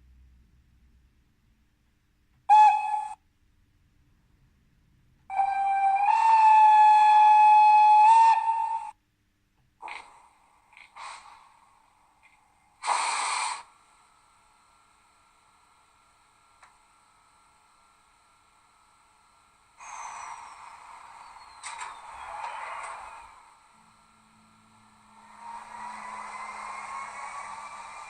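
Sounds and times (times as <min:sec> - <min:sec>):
model locomotive horn: 0:02.5 - 0:03.2, 0:05.3 - 0:09.0
hissing bursts: 0:09.8 - 0:11.8, 0:12.8 - 0:13.9, 0:19.8 - 0:23.6.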